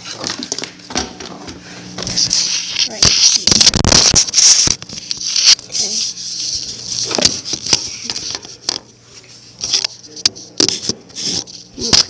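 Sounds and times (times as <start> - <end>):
objects being handled: 0.2 - 12.0.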